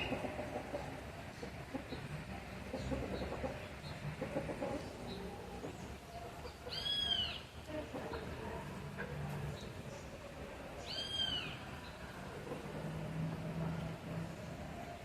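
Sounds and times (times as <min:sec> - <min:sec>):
chickens clucking softly: 0:00.0 - 0:15.0
high rising and falling call: 0:10.8 - 0:11.7.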